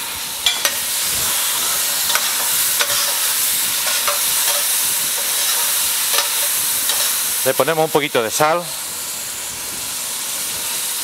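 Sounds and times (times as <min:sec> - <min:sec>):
vegetables sizzling in oil: 0:00.0 - 0:11.0
utensil tapping and scraping pan: 0:01.9 - 0:07.2.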